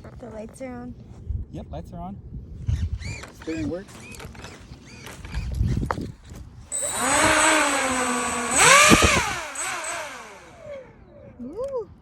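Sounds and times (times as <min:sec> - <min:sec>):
electric fan motor whirring: 0:06.7 - 0:11.0.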